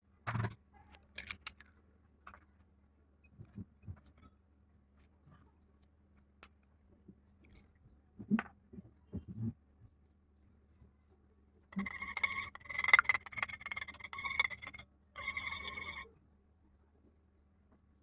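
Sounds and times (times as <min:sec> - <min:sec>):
kitchen items clicking and knocking: 0:11.8 - 0:16.0.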